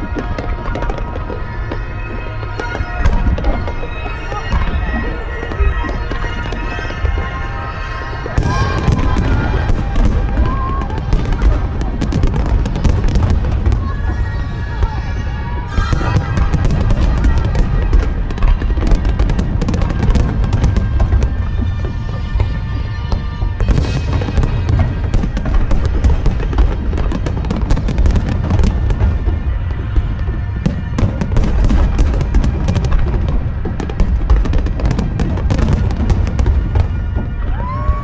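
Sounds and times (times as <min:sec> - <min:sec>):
fireworks booming: 0:00.0 - 0:38.0
fireworks crackling: 0:00.0 - 0:38.0.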